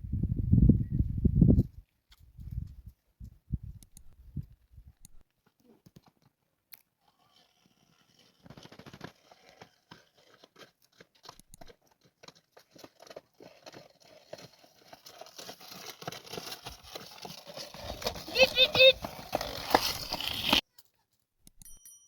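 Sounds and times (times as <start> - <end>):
faint crunching and crackling: 5.2 - 21.2.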